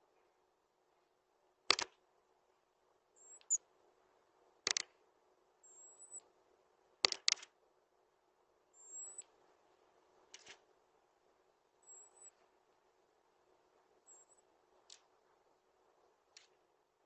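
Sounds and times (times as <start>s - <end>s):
short sharp ticks: 4.7s - 4.9s.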